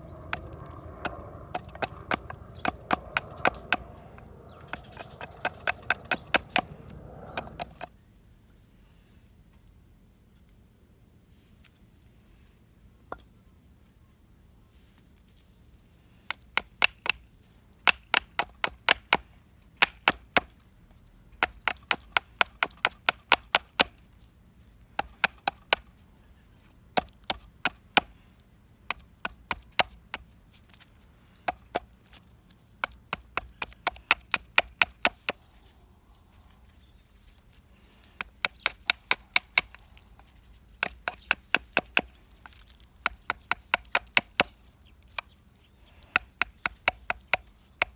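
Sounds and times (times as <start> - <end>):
wood being chopped: 0.2 - 7.9, 16.3 - 17.2, 17.8 - 19.2, 19.8 - 20.6, 21.4 - 24.0, 25.0 - 25.9, 27.0 - 28.1, 28.9 - 30.2, 32.8 - 35.5, 38.2 - 45.4, 46.1 - 47.9.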